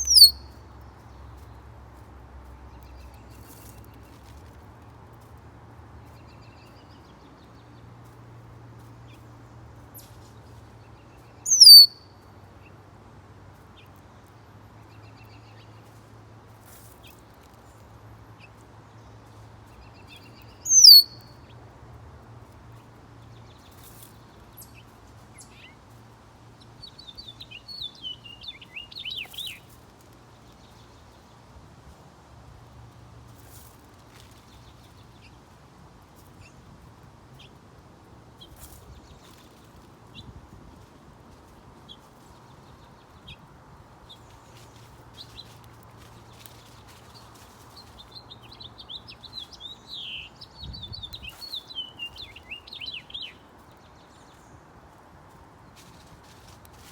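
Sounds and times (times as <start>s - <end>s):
bird chattering notes: 0.0s - 0.4s, 11.5s - 11.9s, 20.7s - 21.1s
songbird downward sliding calls: 0.0s - 0.4s, 11.5s - 11.9s, 20.6s - 21.1s.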